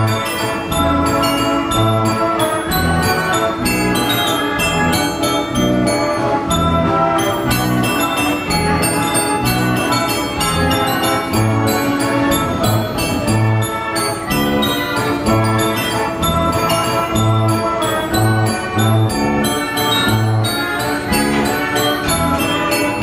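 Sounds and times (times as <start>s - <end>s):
bass notes beat: 0.0s - 4.0s
bells: 0.0s - 23.0s
organ pipe notes: 0.0s - 23.0s.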